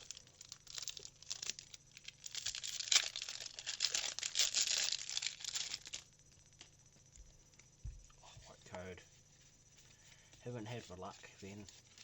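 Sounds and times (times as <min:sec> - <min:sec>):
foil wrapper crinkling: 0:00.0 - 0:06.2, 0:09.8 - 0:12.0.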